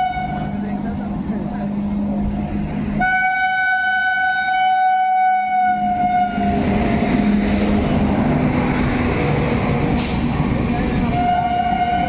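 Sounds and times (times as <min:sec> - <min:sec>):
locomotive horn blast: 0:00.0 - 0:00.7, 0:03.0 - 0:06.6, 0:11.1 - 0:12.0
train passing at speed: 0:00.0 - 0:12.0.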